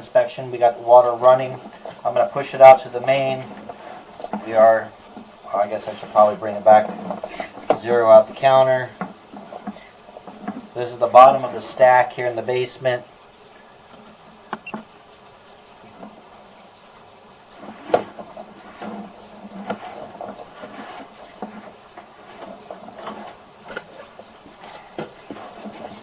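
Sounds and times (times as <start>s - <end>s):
faint steady hiss: 0.0s - 26.0s
cable clicks scrapes and knocks: 1.2s - 12.0s, 17.6s - 26.0s.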